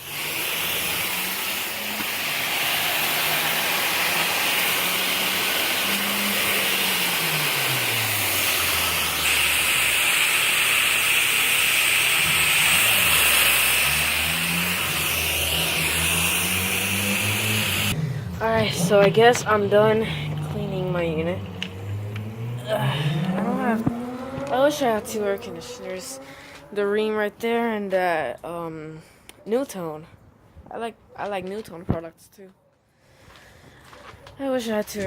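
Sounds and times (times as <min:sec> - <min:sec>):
water spraying on metal unit: 0:00.0 - 0:26.3.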